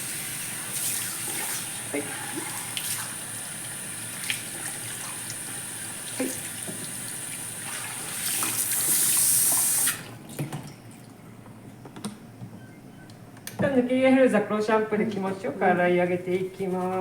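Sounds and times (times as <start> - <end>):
hand shower spraying water: 0.0 - 10.0.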